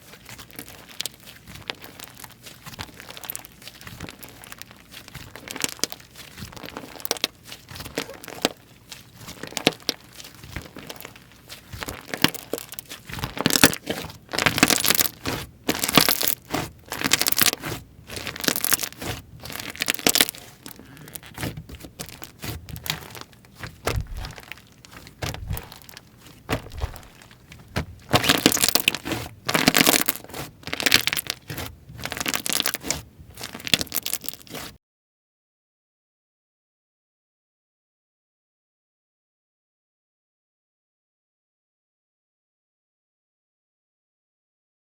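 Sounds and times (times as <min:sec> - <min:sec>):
slime squishing: 0:00.0 - 0:34.8.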